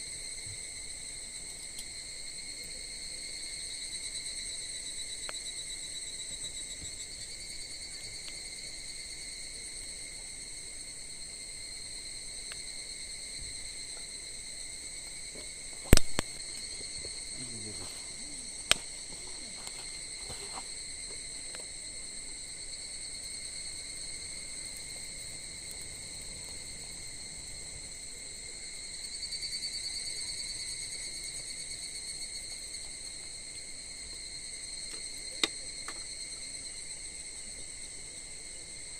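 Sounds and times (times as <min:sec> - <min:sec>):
insects trilling: 0:00.0 - 0:38.9
sharp cracks: 0:15.8 - 0:16.7, 0:17.4 - 0:19.8.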